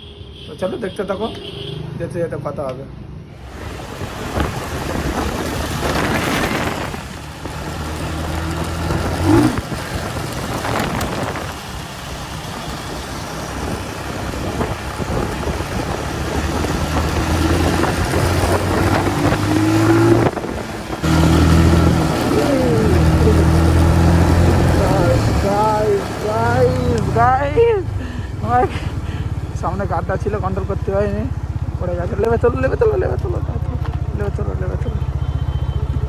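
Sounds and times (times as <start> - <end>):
wind rushing over microphone: 3.4 - 27.7
motorcycle engine running: 3.5 - 36.0.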